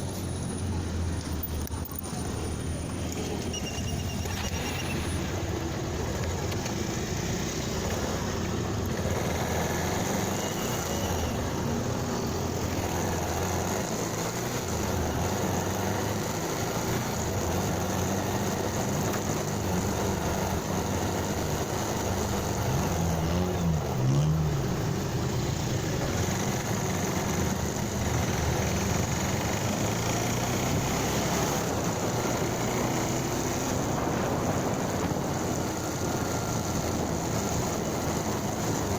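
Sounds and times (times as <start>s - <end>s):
motorcycle engine running: 0.0s - 38.9s
wind noise: 31.7s - 38.9s.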